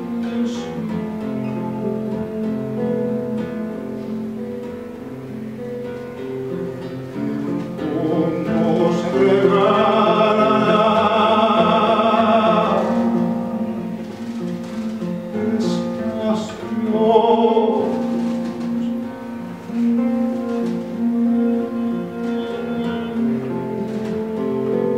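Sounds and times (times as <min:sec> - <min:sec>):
person singing long wavering note: 0:00.0 - 0:04.0, 0:07.0 - 0:14.0
acoustic guitar playing: 0:00.0 - 0:24.9.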